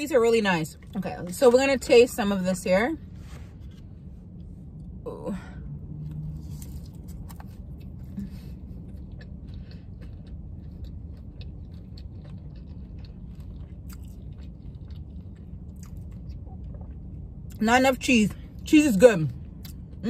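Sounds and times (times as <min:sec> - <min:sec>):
steady low hum: 0:00.0 - 0:20.0
crunchy chewing with mouth clicks: 0:06.0 - 0:17.6.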